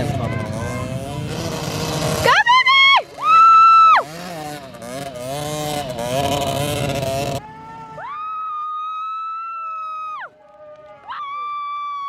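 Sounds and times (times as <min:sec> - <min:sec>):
dirt bike engine revving: 0:00.0 - 0:08.0.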